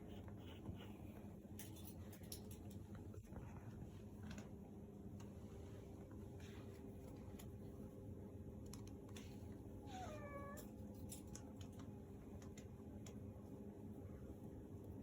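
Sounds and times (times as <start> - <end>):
cat meowing: 9.8 - 10.7.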